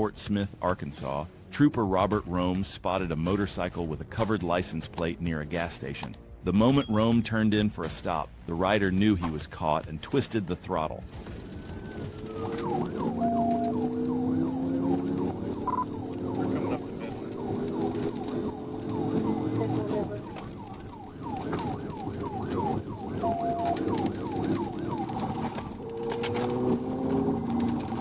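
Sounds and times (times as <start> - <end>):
car engine accelerating: 11.1 - 28.0
police siren yelping: 11.4 - 28.0.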